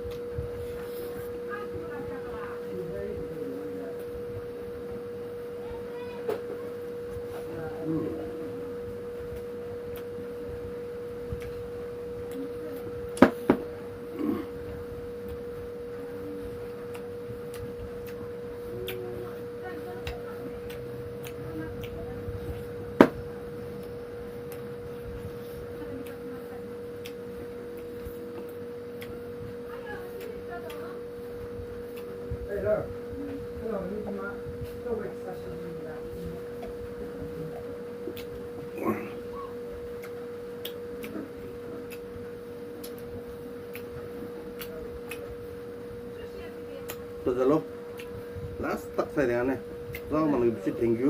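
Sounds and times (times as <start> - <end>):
steady high hum: 0.0 - 51.0
sharp eating clicks: 9.2 - 13.2, 16.2 - 32.8, 36.5 - 51.0
mouth clicks: 16.8 - 19.4, 20.0 - 22.6, 31.6 - 32.3, 38.0 - 45.6, 46.8 - 47.2, 47.8 - 48.6, 49.8 - 50.2.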